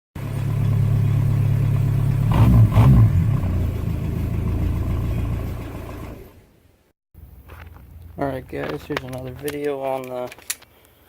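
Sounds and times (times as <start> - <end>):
diesel engine idling and revving: 0.2 - 6.5.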